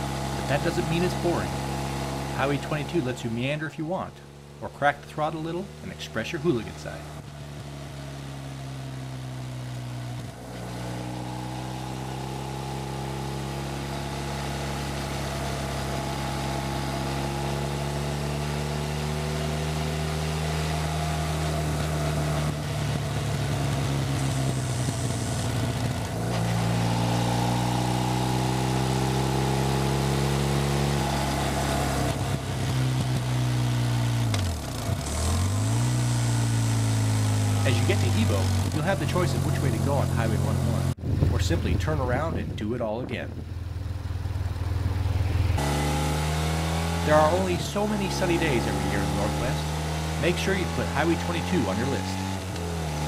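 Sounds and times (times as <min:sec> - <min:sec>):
motorcycle engine running under load: 0:00.0 - 0:42.6, 0:43.3 - 0:53.0
wind rush: 0:41.0 - 0:42.6.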